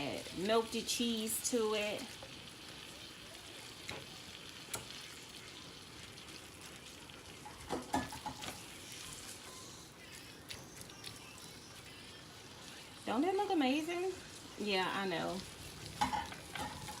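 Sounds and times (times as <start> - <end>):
meat sizzling in a pan: 0.0 - 17.0
spoon scraping a pan: 15.9 - 17.0.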